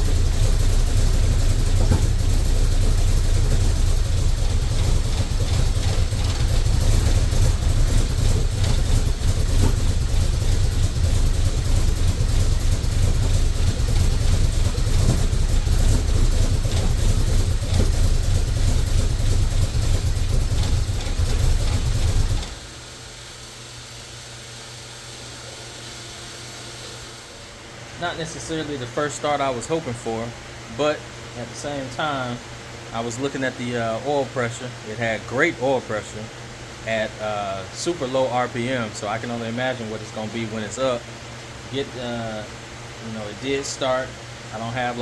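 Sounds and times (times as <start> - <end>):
engine idling: 0.0 - 33.4.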